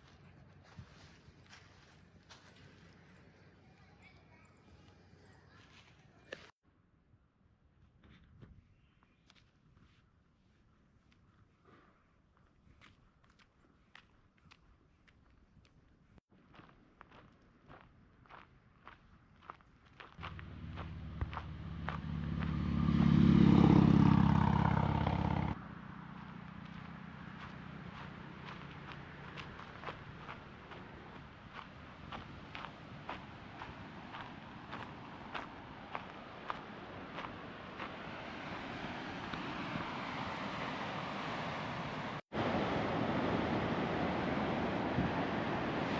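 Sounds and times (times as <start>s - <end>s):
motorcycle engine running: 20.2s - 29.0s
surf on rocky shore: 32.2s - 45.9s
wind on microphone: 41.6s - 45.9s.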